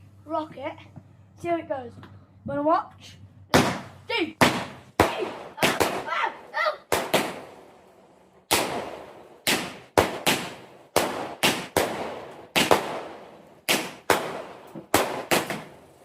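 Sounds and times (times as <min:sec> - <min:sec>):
fireworks bangs: 0:03.5 - 0:16.0.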